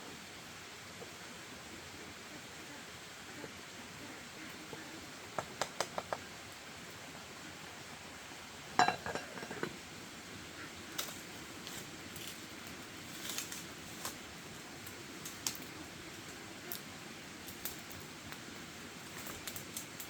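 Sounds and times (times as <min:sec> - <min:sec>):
small ticks: 0:14.8 - 0:15.7, 0:16.6 - 0:16.8, 0:17.4 - 0:18.4, 0:19.1 - 0:20.0.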